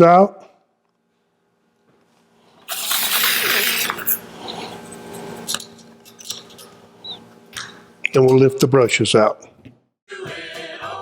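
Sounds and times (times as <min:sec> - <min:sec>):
screwdriver scraping metal: 0:02.7 - 0:07.2
metal screws clinking: 0:05.4 - 0:06.8.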